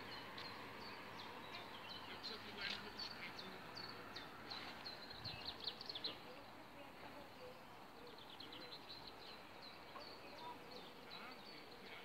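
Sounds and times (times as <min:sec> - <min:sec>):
faint outdoor background noise: 0:00.0 - 0:12.0
small birds chirping: 0:00.0 - 0:12.0.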